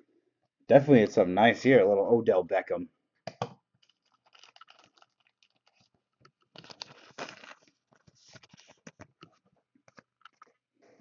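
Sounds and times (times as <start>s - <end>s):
plastic packaging rustling: 3.9s - 5.9s, 6.5s - 9.2s.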